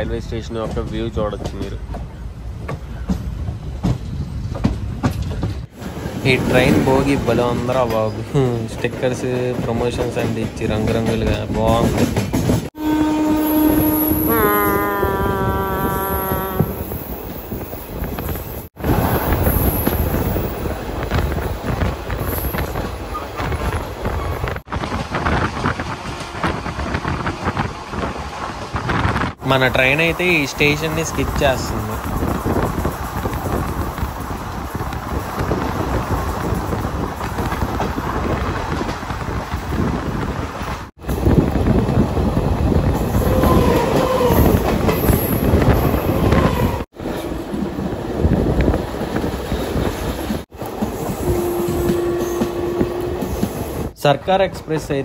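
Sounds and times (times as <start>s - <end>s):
train wheels rumbling on track: 0.0s - 55.0s
wind buffeting microphone: 13.6s - 29.4s, 31.2s - 54.0s.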